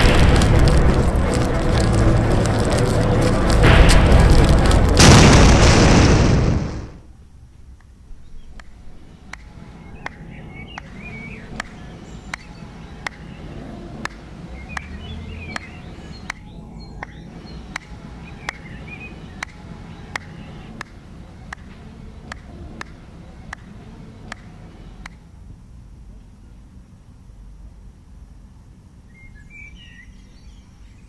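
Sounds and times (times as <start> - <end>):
sharp ticking: 0.0 - 6.9
faint bird chirps: 29.0 - 31.0.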